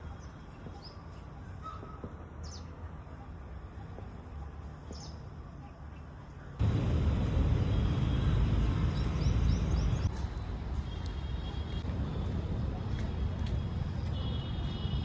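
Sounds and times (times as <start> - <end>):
birds chirping: 7.8 - 10.2.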